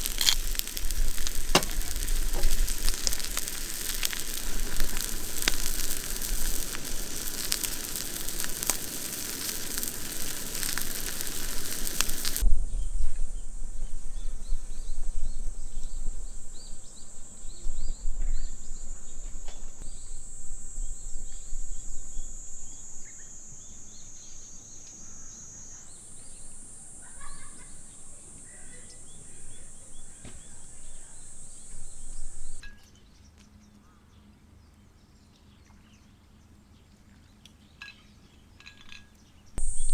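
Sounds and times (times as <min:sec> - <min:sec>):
food sizzling in a pan: 0:00.0 - 0:12.4, 0:19.9 - 0:32.6, 0:39.6 - 0:39.9.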